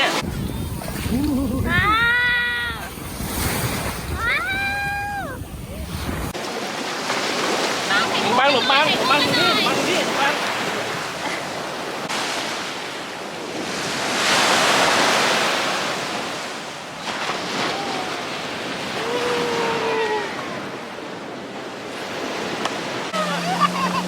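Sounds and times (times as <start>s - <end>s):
wind on microphone: 0.0s - 6.4s
sea waves on a beach: 0.0s - 24.0s.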